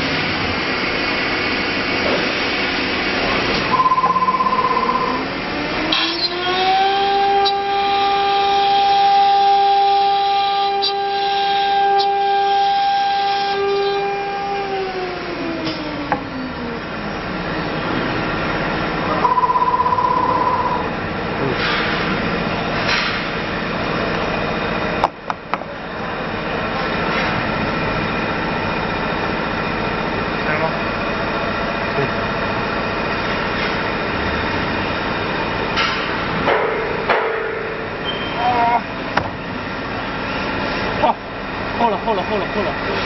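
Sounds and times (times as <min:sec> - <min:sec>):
machine noise: 0:00.0 - 0:43.0
short electronic beep: 0:03.7 - 0:05.3, 0:19.2 - 0:20.9.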